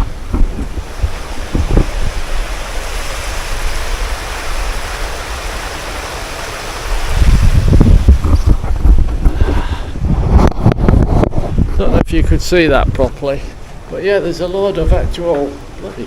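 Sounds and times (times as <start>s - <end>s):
water rushing over weir: 0.0s - 11.3s
low wind buffeting on microphone: 0.0s - 13.9s, 14.7s - 15.3s.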